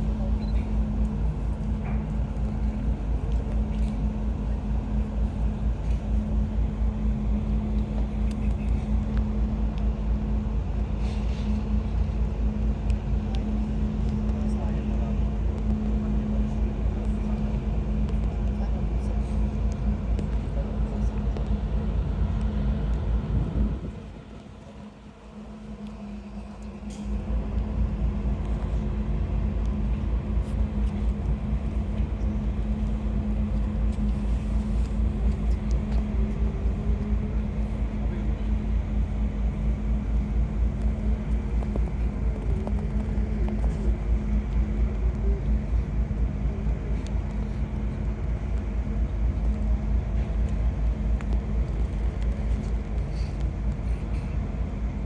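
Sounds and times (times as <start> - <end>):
steady low hum: 0.0 - 55.0
wind buffeting microphone: 19.8 - 25.1.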